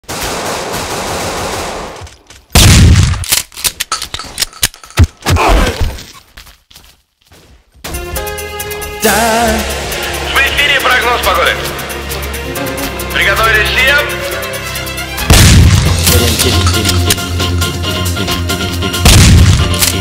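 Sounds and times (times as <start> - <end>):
sharp cracks: 0.0 - 5.3
music: 7.8 - 20.0.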